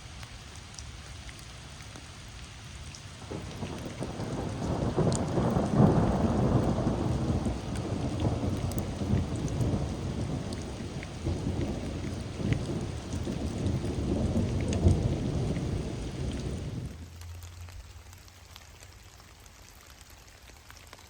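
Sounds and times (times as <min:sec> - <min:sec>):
heavy rain falling: 0:00.0 - 0:21.0
thunder rumbling: 0:03.2 - 0:17.1.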